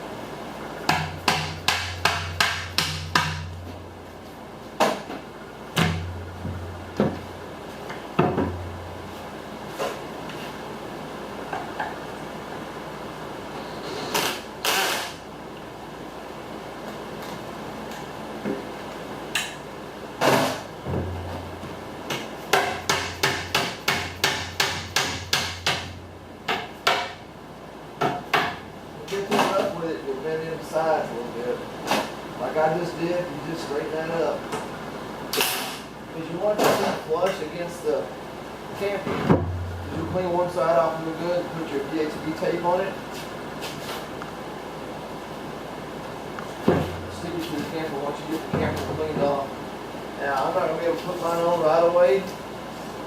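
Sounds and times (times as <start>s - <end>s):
hammer tapping on aluminium: 0.9s - 3.6s, 22.1s - 27.2s.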